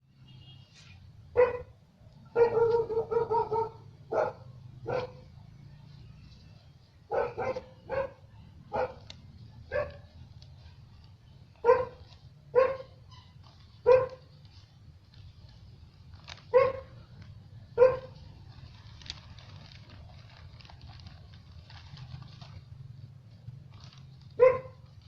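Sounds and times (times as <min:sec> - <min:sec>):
dog barking: 0:01.3 - 0:01.7, 0:02.3 - 0:05.2, 0:07.1 - 0:09.1, 0:09.7 - 0:10.1, 0:11.6 - 0:13.0, 0:13.8 - 0:14.3, 0:16.5 - 0:17.0, 0:17.8 - 0:18.2, 0:24.4 - 0:24.8.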